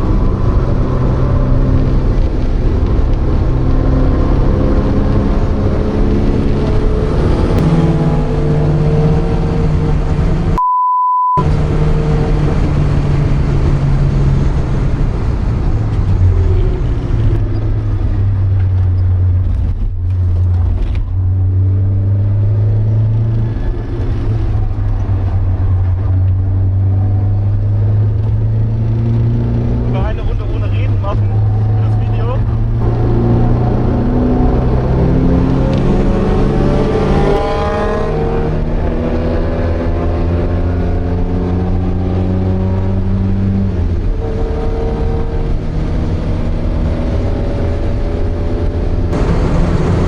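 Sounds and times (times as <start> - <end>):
car engine running hard: 0.0 - 10.6, 11.4 - 50.0
steady beep: 10.6 - 11.4.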